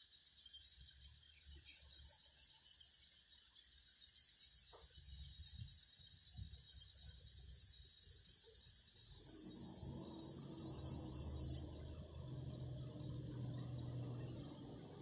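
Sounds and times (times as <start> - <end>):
cicadas buzzing: 1.7 - 11.8.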